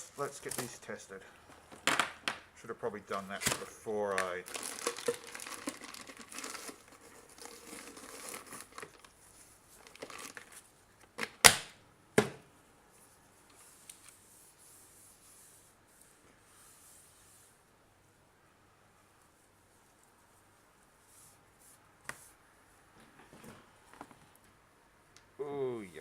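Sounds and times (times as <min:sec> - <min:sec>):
rustling and scraping objects: 0:00.0 - 0:02.3, 0:03.1 - 0:11.2, 0:19.2 - 0:24.6.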